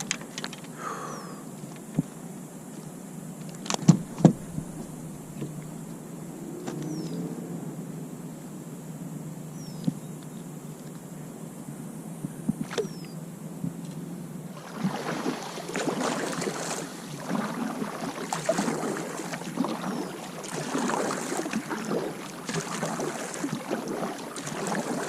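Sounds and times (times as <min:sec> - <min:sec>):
water splashing at a kayak: 0:03.0 - 0:07.0, 0:12.5 - 0:25.0.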